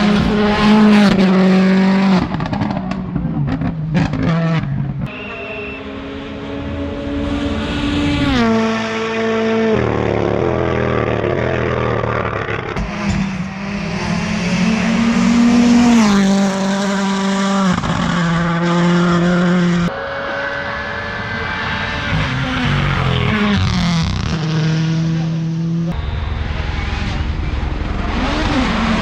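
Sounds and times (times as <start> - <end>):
rally car engines running hard: 0.0 - 29.0.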